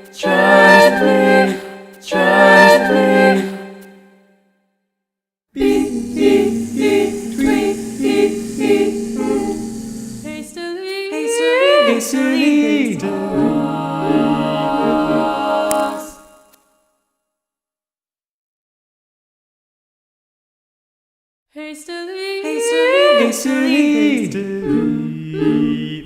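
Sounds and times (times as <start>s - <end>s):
a cappella choir singing: 0.0s - 4.1s, 5.6s - 16.5s, 22.4s - 26.0s.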